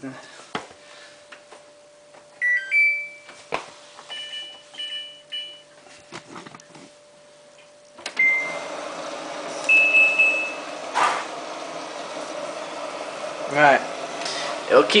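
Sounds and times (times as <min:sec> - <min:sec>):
washing machine beeps: 0:02.4 - 0:03.4, 0:04.0 - 0:05.8, 0:08.0 - 0:08.8, 0:09.6 - 0:10.8.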